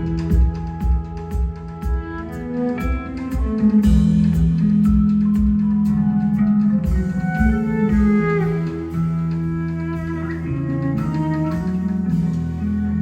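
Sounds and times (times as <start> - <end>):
kick drum beating: 0.0 - 8.7
live rock band playing: 0.0 - 13.0.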